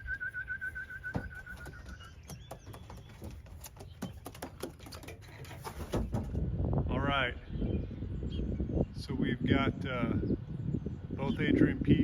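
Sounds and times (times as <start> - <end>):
warbling call whistle: 0.0 - 1.8.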